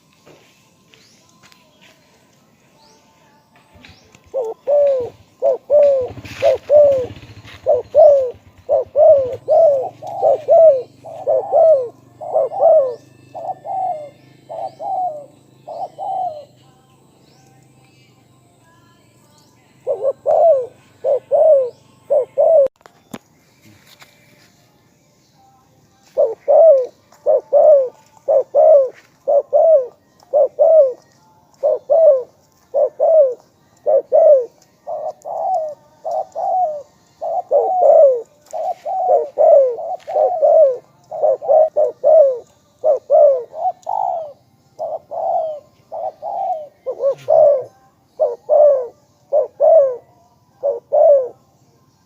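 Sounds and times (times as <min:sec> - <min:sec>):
dove cooing: 0:03.7 - 0:16.6, 0:19.8 - 0:22.8, 0:26.1 - 0:51.4.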